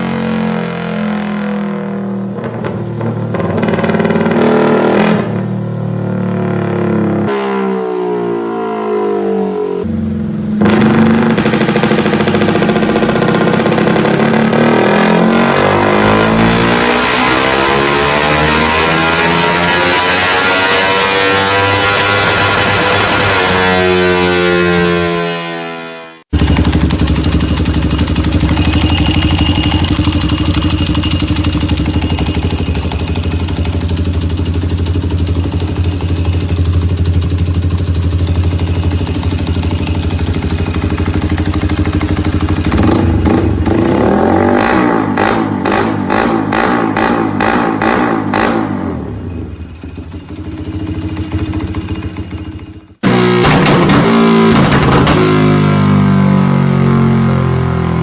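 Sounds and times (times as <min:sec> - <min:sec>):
engine repeated pulses: 0:09.8 - 0:57.2
motorcycle engine idling: 0:09.9 - 0:14.5, 0:26.3 - 0:44.0, 0:49.2 - 0:53.0.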